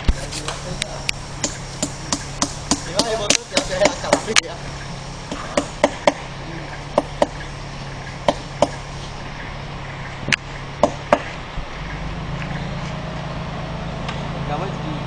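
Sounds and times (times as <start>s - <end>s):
sharp strikes: 0.0s - 12.0s
steady low hum: 0.0s - 15.0s.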